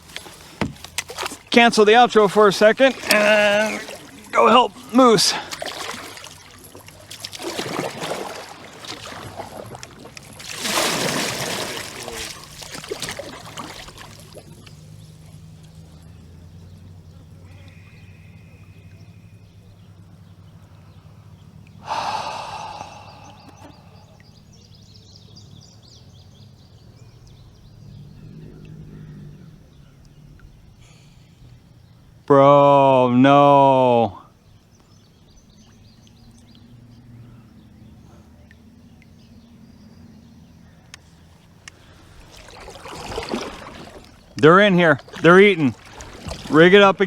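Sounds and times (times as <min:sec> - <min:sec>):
water splashing around kayak: 0:00.0 - 0:32.0, 0:34.8 - 0:47.0
birds chirping: 0:00.0 - 0:47.0
small knocks: 0:00.1 - 0:01.5
low outdoor rumble: 0:13.2 - 0:32.3.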